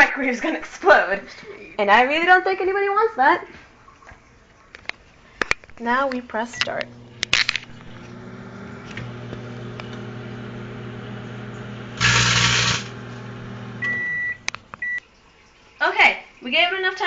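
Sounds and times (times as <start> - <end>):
microwave oven humming: 6.2 - 15.0
microwave high beep: 6.5 - 15.0.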